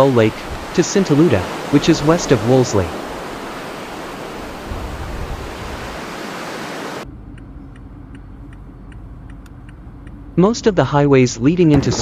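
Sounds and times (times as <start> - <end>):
blizzard wind blowing hard: 0.0 - 7.0
low rumble of gust: 0.0 - 10.8.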